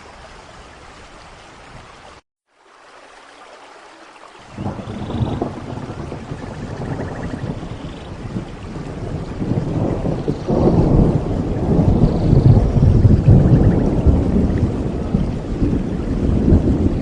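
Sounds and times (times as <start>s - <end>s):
steady rain: 0.0s - 17.0s
rolling thunder: 4.5s - 17.0s.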